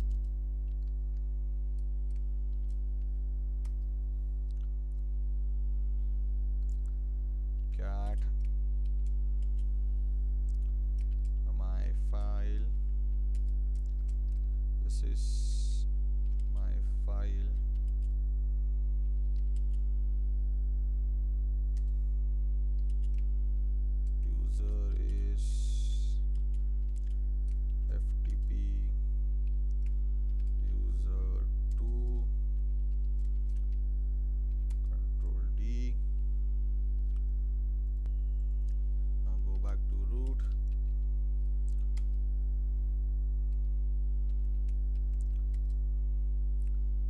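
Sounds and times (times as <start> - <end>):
computer keyboard keystrokes: 0.0 - 1.2, 8.1 - 9.7, 10.5 - 11.4, 13.3 - 14.5, 17.6 - 18.1, 19.3 - 19.8, 22.8 - 23.3, 26.3 - 28.8, 32.9 - 33.8
low electrical hum: 0.0 - 47.0
keyboard keys clicking: 13.3 - 14.5, 22.8 - 23.3.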